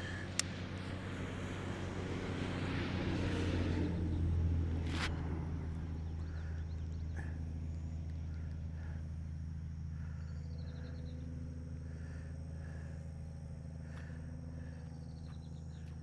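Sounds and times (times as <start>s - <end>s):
steady low hum: 0.0s - 16.0s
vehicle passing on road: 0.0s - 16.0s.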